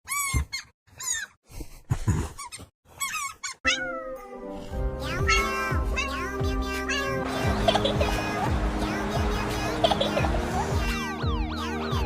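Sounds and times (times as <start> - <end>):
background music: 3.7 - 12.0.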